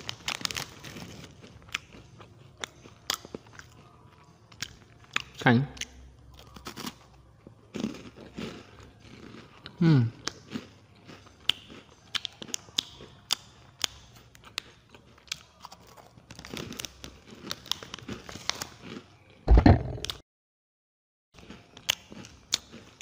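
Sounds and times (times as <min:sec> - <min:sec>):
foil packet crinkling: 0:00.0 - 0:01.4
crunchy chewing: 0:00.0 - 0:19.4, 0:21.4 - 0:23.0
loud thump: 0:19.5 - 0:20.1.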